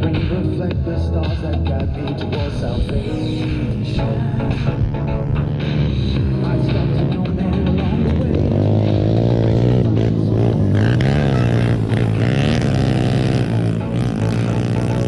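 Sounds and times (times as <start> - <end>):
small engine revving: 4.6 - 15.0.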